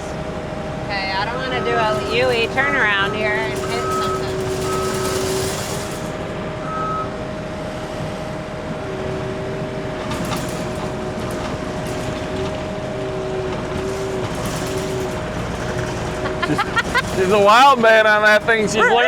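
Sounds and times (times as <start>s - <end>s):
track loader engine and hydraulics: 0.0s - 19.0s.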